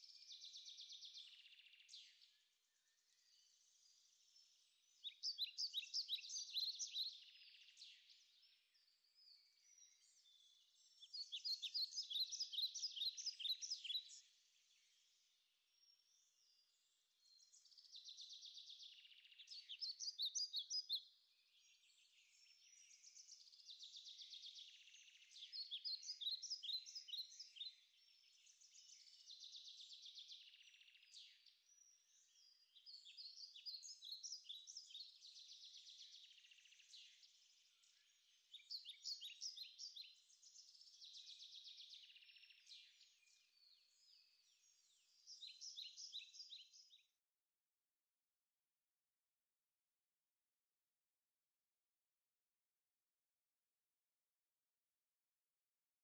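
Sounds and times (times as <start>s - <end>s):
faint songbird singing: 0.0s - 47.4s.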